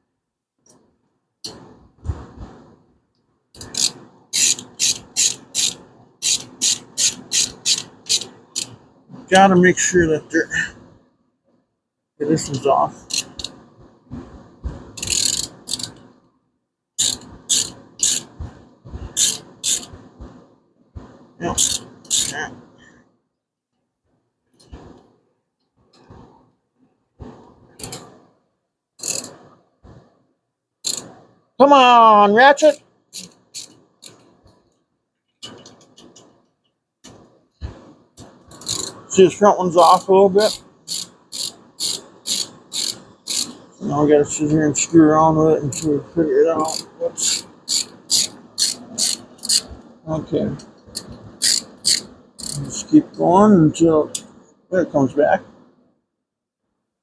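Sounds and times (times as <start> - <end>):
ratchet wrench clicking: 3.6 - 8.7, 13.1 - 13.6, 15.0 - 16.0, 17.0 - 18.3, 19.2 - 19.9, 21.6 - 22.4, 27.8 - 28.1, 29.0 - 29.4, 30.8 - 31.1, 33.1 - 34.2, 38.5 - 39.0, 39.9 - 43.6, 45.7 - 45.9, 46.6 - 49.7, 50.9 - 52.7.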